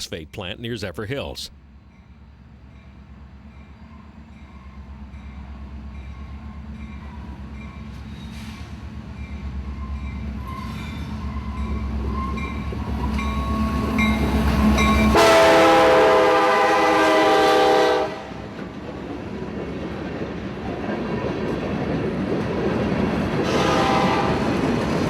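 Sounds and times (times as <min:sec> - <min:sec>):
train horn: 0:15.1 - 0:18.5, 0:23.4 - 0:24.6.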